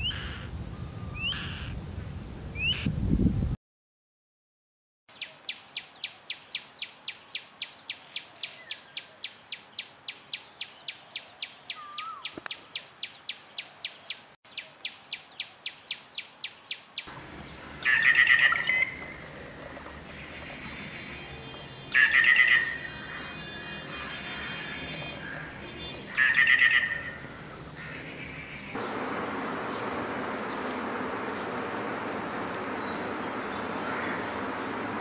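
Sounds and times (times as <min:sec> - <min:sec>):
loud bird calls: 0:00.0 - 0:01.8, 0:05.1 - 0:35.0
bird calling short high notes: 0:20.2 - 0:27.2.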